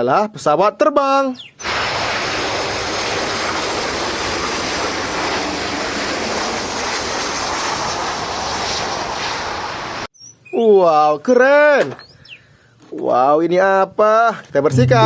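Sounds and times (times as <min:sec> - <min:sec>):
aircraft engine drone: 0:01.6 - 0:10.1.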